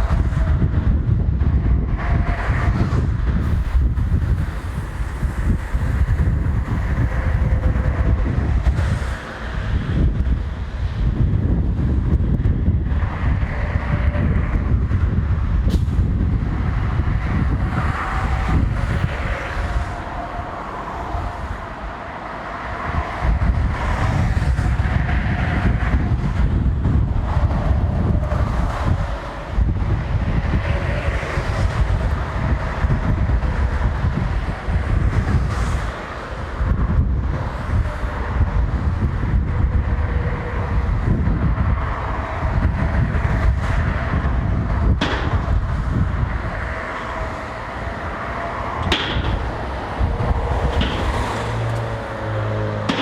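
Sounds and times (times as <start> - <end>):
diesel locomotive rumbling: 0.0 - 53.0.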